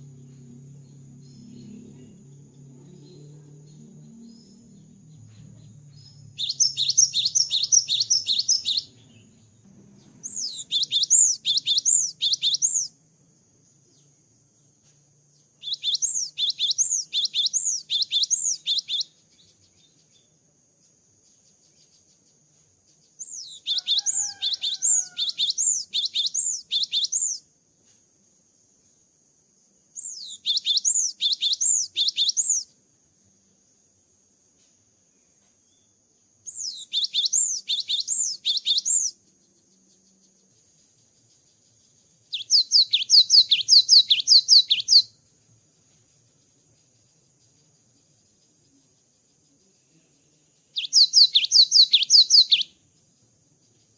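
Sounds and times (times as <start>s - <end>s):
bird singing high whistled notes: 5.8s - 13.0s, 15.6s - 20.2s, 23.2s - 27.4s, 30.0s - 32.7s, 36.4s - 39.2s, 42.3s - 45.2s, 50.7s - 52.8s.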